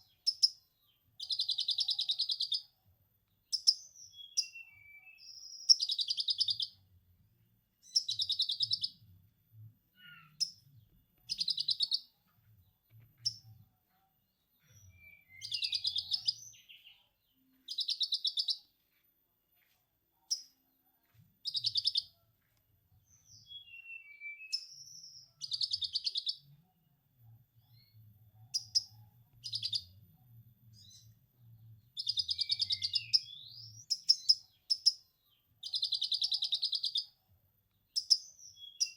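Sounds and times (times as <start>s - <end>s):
thin downward-sliding bird whistles: 23.4s - 24.8s.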